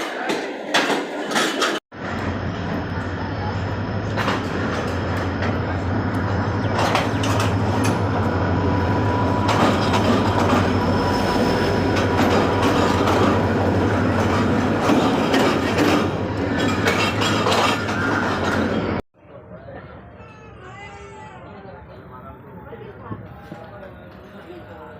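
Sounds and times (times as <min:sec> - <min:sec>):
wheels clattering over rail joints: 0:00.0 - 0:01.8, 0:04.0 - 0:08.3, 0:09.3 - 0:19.0
train rumbling: 0:00.0 - 0:19.0.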